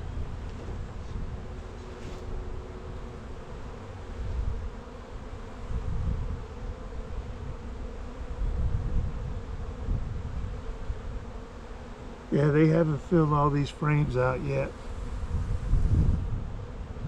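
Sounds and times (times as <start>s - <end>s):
wind rumbling on microphone: 0.0s - 11.4s, 14.9s - 17.0s
honeybees buzzing: 0.0s - 17.0s.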